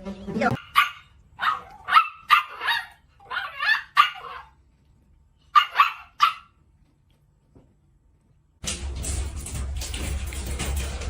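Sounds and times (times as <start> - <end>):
dog barking: 0.6 - 4.5, 5.5 - 6.6.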